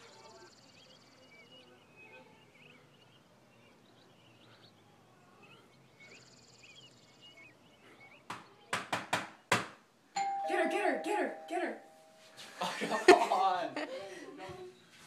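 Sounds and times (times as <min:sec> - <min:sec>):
small birds chirping: 0:00.0 - 0:09.9
sharp knocks: 0:08.3 - 0:09.8.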